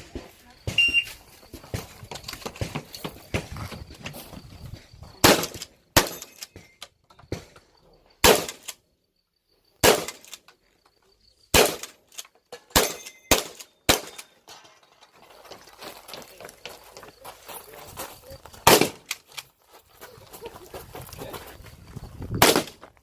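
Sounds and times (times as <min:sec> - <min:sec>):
shotgun shots: 0:05.2 - 0:06.3, 0:08.2 - 0:08.7, 0:09.8 - 0:10.4, 0:11.5 - 0:12.0, 0:12.7 - 0:14.4, 0:18.6 - 0:19.2, 0:22.4 - 0:22.8.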